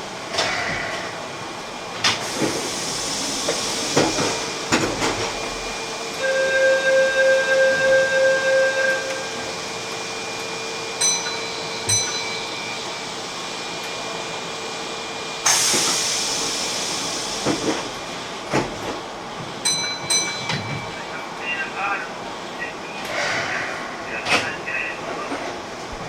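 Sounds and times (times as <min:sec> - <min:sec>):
electric train rumbling: 0:00.0 - 0:26.0
compressed-air hiss: 0:02.2 - 0:04.7, 0:15.5 - 0:17.9
bell-like dings: 0:11.0 - 0:12.6, 0:19.6 - 0:21.0.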